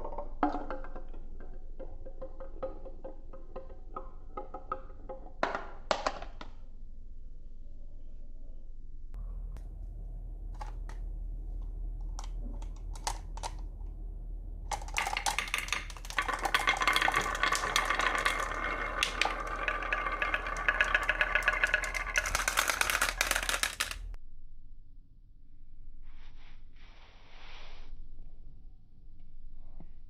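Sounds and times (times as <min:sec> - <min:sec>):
marbles clattering down wooden track: 0:00.0 - 0:05.6, 0:12.1 - 0:14.0, 0:14.6 - 0:24.2.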